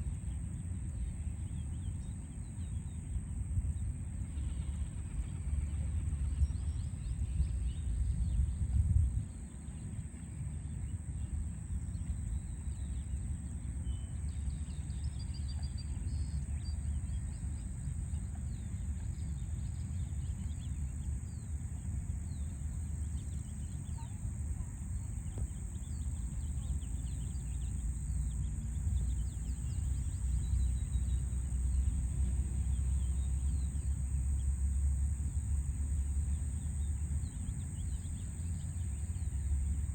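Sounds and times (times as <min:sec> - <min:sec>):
city background rumble: 0:15.5 - 0:39.9.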